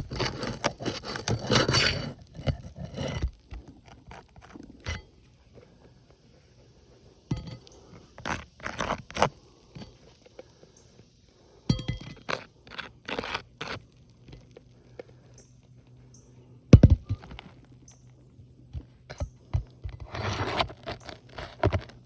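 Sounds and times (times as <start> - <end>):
shingles crunching and scraping: 0.0 - 5.8, 7.4 - 10.4, 12.1 - 15.2, 19.5 - 22.0
heavy thump: 16.8 - 17.4.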